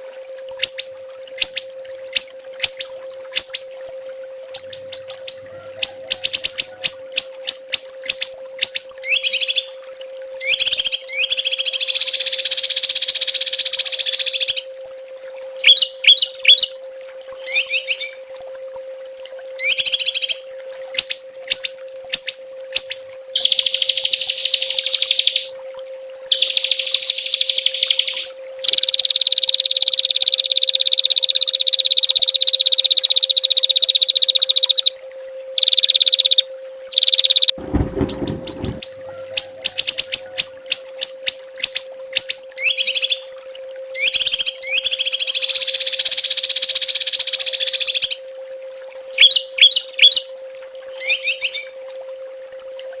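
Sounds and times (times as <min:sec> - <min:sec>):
steady low hum: 0:00.0 - 0:28.8, 0:32.1 - 0:53.0
songbirds trilling and chirping: 0:00.6 - 0:03.7, 0:04.5 - 0:09.8, 0:35.6 - 0:43.3, 0:51.0 - 0:51.8
low thud: 0:37.6 - 0:39.0.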